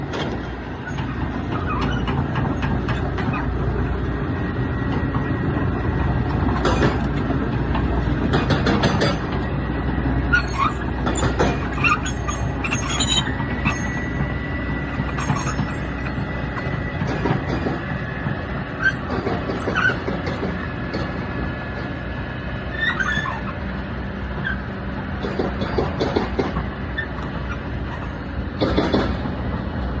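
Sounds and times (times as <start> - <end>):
excavator diesel engine rumbling: 0.0 - 30.0
metallic clanks and knocks: 6.5 - 9.4, 10.6 - 12.2, 15.0 - 17.9, 19.0 - 21.9, 25.2 - 26.7, 28.6 - 29.3
thin squeal: 10.3 - 14.2, 15.1 - 15.9.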